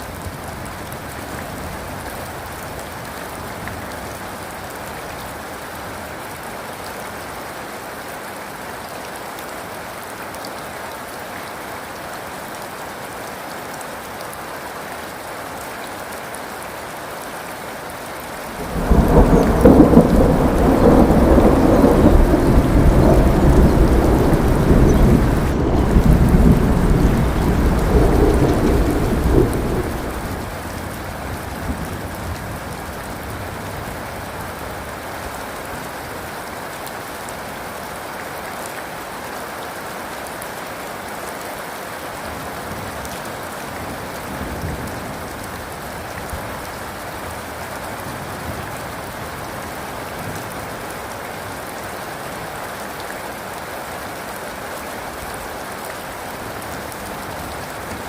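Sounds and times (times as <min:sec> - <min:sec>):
rain falling: 0:00.0 - 0:58.0
low thunder rumble: 0:18.5 - 0:32.0.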